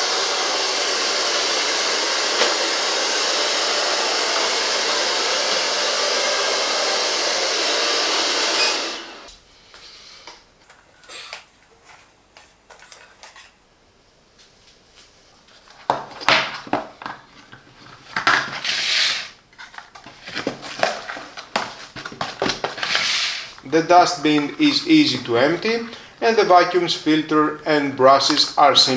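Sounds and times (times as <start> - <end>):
vacuum suction motor running: 0.0 - 9.3, 22.7 - 28.9.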